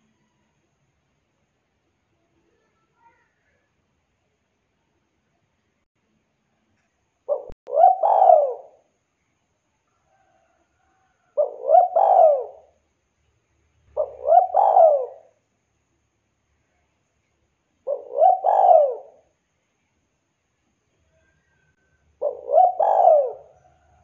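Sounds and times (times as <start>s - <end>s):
dove cooing: 7.3s - 8.8s, 11.4s - 12.8s, 13.9s - 15.3s, 17.8s - 19.3s, 22.2s - 24.0s.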